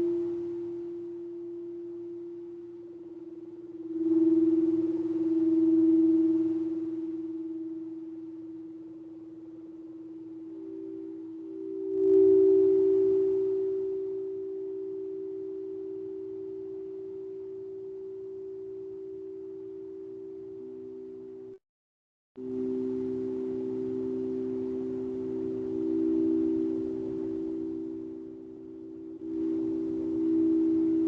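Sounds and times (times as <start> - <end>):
bowl being struck: 0.0 - 21.6, 22.4 - 31.0
singing bowls ringing: 0.0 - 21.6, 22.4 - 31.0.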